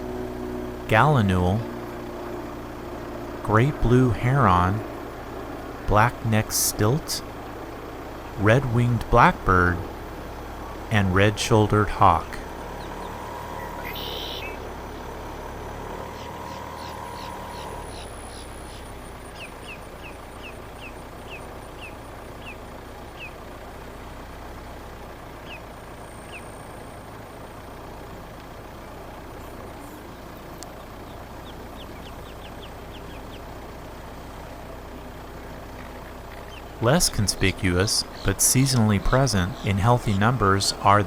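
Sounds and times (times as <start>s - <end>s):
car moving slowly: 0.0s - 41.0s
bird chirping: 11.4s - 15.1s, 15.9s - 23.4s, 25.4s - 27.0s, 28.8s - 33.6s, 35.7s - 41.0s.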